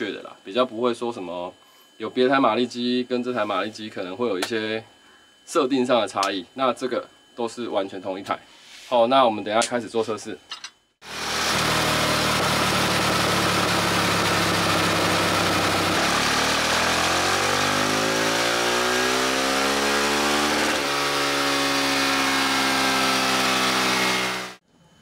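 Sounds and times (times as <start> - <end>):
motorcycle engine revving: 11.0 - 24.6.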